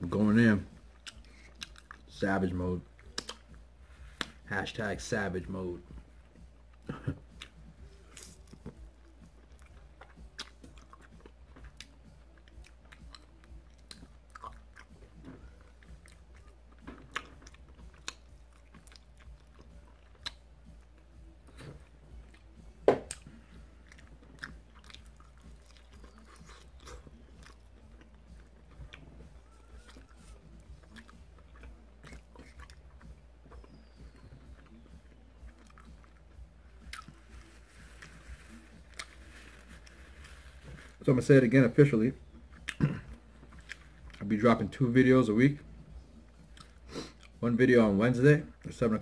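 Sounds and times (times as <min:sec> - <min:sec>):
biting and chewing: 0:00.8 - 0:02.1, 0:06.3 - 0:41.0.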